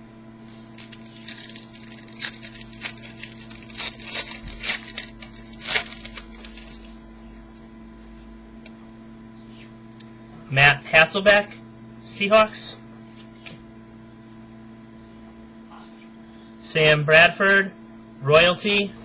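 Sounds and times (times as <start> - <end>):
steady electrical hum: 0.0 - 19.0
cards and wrapper crackling: 0.7 - 6.9.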